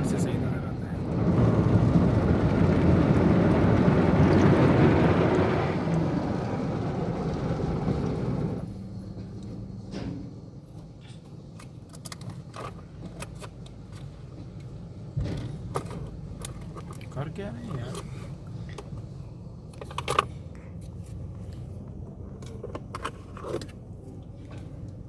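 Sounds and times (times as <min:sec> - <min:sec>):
car wash machinery rushing: 0:00.0 - 0:08.9.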